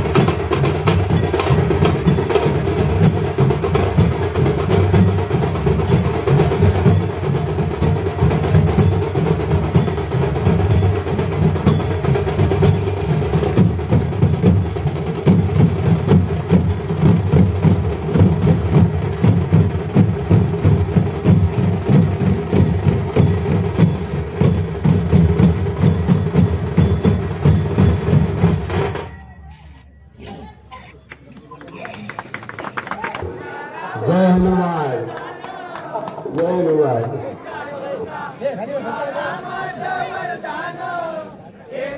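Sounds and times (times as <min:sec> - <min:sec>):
fast drums and percussion: 0:00.0 - 0:29.6.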